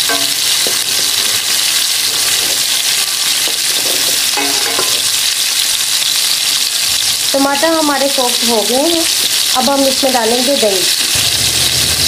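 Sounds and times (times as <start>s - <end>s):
metal spoon scraping a pot: 0.0s - 5.1s
food sizzling in hot oil: 0.0s - 12.0s.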